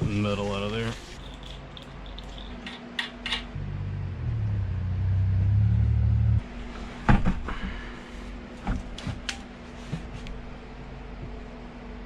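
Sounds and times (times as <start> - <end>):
metal clinks and knocks: 1.2 - 3.6.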